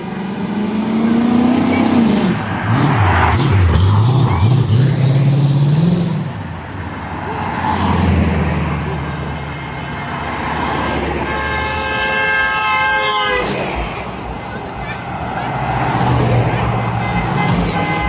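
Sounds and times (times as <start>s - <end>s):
car horn: 10.8s - 18.0s.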